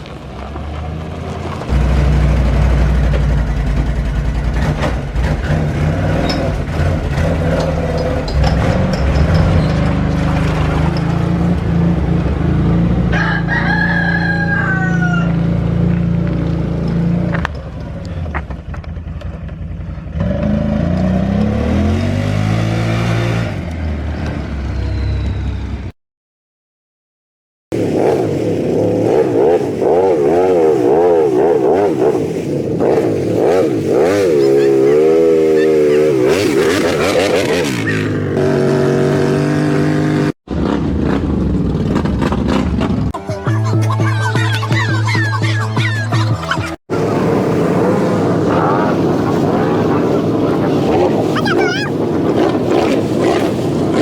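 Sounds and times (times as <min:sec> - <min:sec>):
vehicle engine running: 0:00.0 - 0:21.1
rooster crowing: 0:13.1 - 0:15.6.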